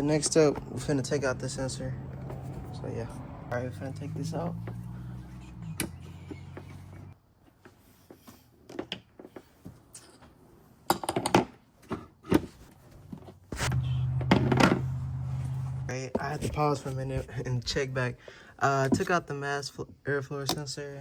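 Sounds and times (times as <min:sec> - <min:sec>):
steady low hum: 0:13.6 - 0:15.9.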